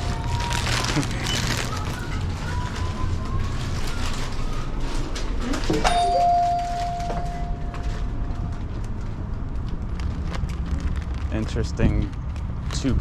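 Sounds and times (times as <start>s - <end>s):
store bustle: 0.0s - 13.0s
shop door chime: 5.7s - 8.5s.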